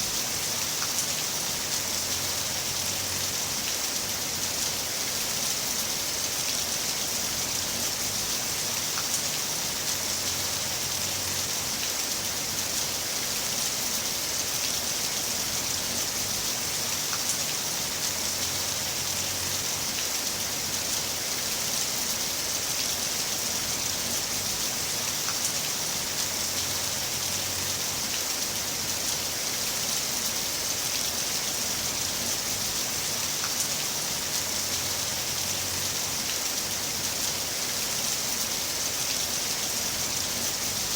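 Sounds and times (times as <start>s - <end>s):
heavy rain hissing: 0.0s - 40.9s.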